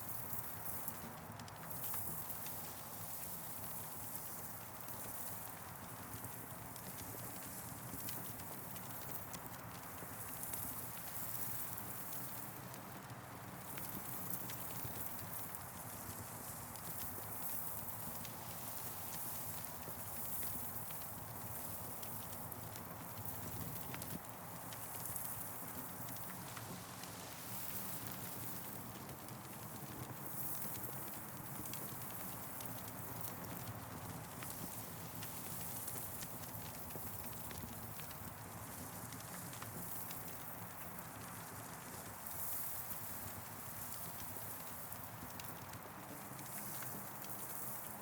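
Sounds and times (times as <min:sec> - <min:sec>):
campfire crackling: 0:13.4 - 0:38.4, 0:39.6 - 0:41.2.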